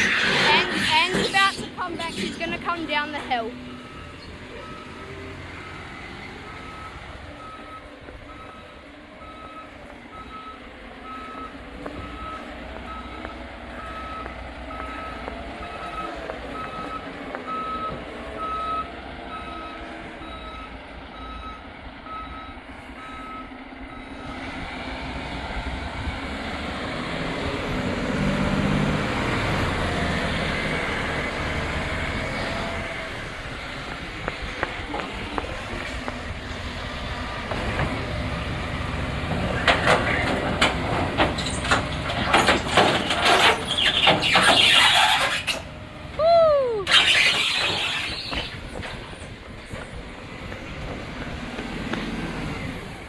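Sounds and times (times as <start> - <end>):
truck engine running: 0.0 - 53.0
back-up alarm beeping: 3.1 - 24.4.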